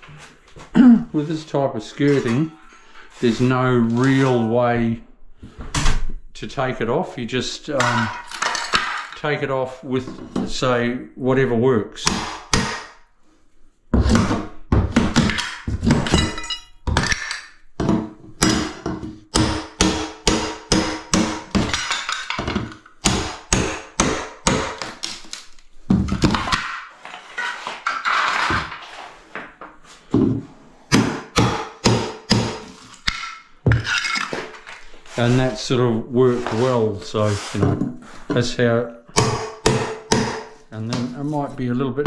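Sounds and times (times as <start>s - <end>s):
tile scraping and crumbling: 2.0s - 4.5s, 7.8s - 9.4s, 24.8s - 30.6s, 32.6s - 38.6s.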